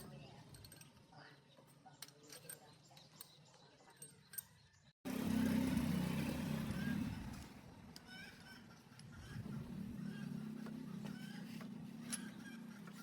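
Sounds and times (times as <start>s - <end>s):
engine low rumble: 5.1s - 13.0s.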